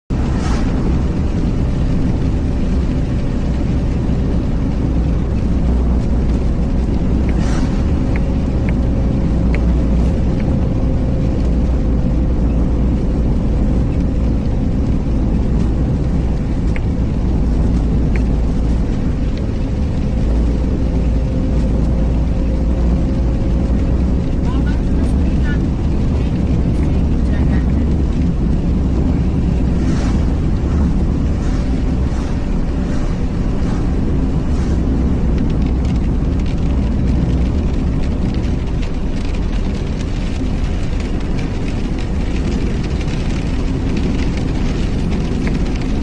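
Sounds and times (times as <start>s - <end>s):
car low rumble: 0.0s - 46.0s
light ticks: 3.2s - 11.8s, 13.7s - 28.3s.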